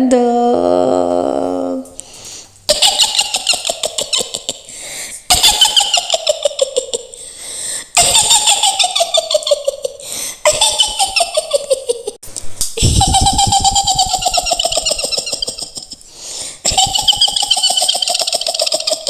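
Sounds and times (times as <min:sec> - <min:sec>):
woman cackling: 0:12.8 - 0:19.0.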